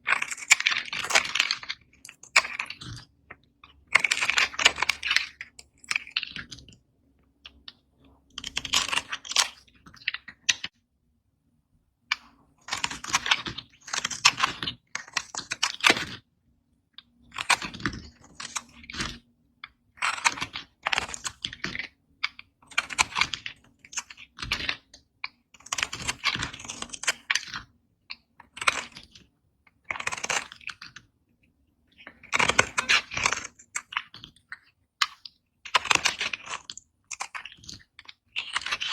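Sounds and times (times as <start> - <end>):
blade cutting dry soap: 29.8 - 31.0, 32.0 - 38.9.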